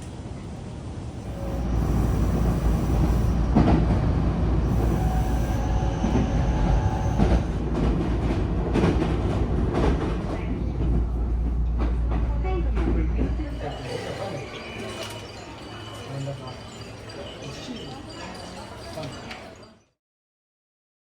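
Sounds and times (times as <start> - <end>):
train rumbling on rails: 0.0 - 19.5.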